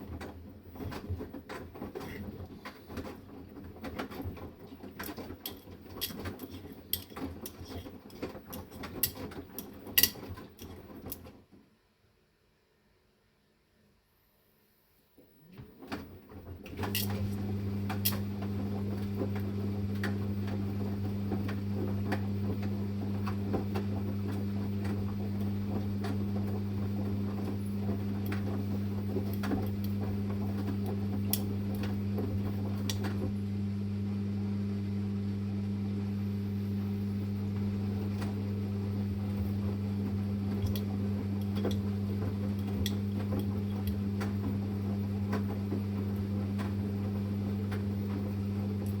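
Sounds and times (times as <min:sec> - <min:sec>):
washing machine motor humming: 0:15.8 - 0:49.0.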